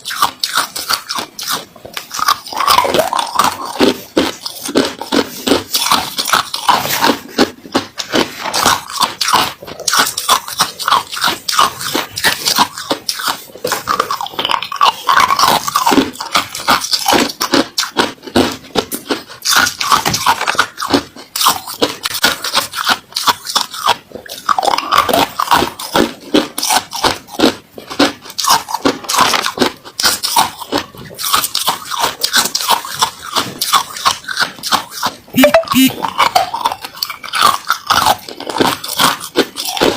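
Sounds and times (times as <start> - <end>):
person chewing ice: 0.0 - 39.9.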